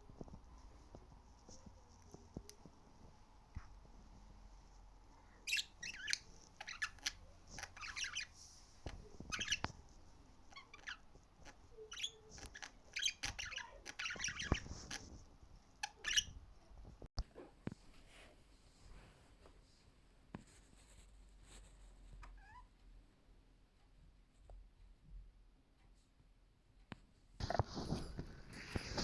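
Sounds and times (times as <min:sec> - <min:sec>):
budgerigars chirping: 0:05.4 - 0:08.3, 0:09.2 - 0:09.7, 0:10.5 - 0:15.0, 0:15.8 - 0:16.4.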